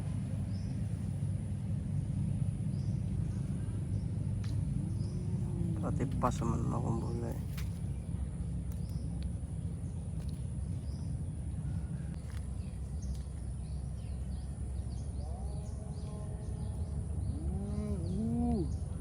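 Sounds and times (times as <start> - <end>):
low outdoor noise: 0.0 - 19.0
faint bird chirps: 8.7 - 19.0.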